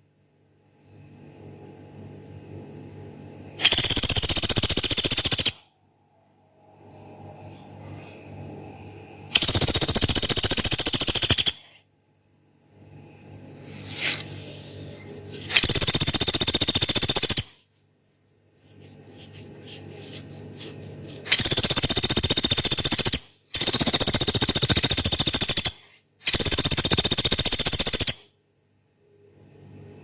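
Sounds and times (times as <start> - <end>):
woodpecker rattling calls: 3.6 - 5.6, 9.3 - 11.7, 15.5 - 17.6, 21.2 - 28.2.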